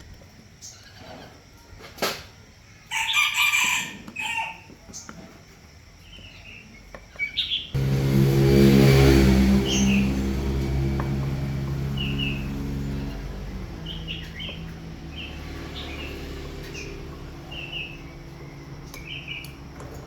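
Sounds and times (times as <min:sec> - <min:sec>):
rooster crowing: 0:02.9 - 0:04.7
small engine running: 0:07.8 - 0:20.0.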